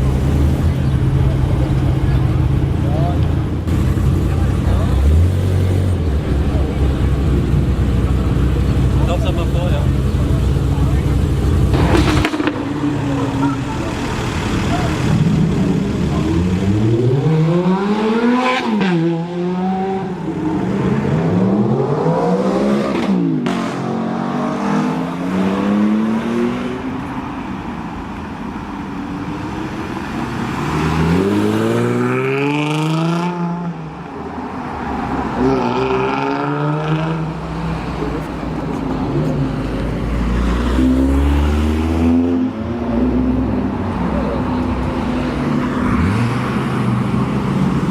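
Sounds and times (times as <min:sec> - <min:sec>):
sports car engine revving: 0:03.6 - 0:26.9.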